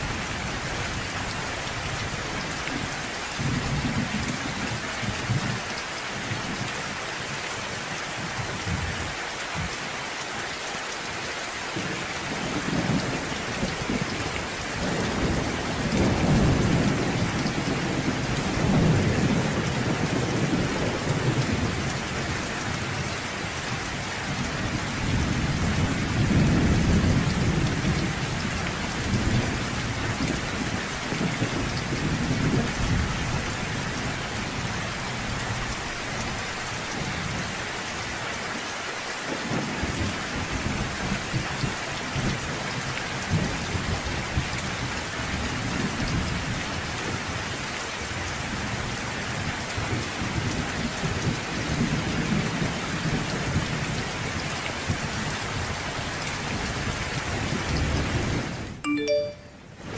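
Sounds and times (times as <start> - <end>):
steady rain falling: 0.0 - 59.9
low rolling thunder: 11.8 - 23.1, 24.2 - 34.6.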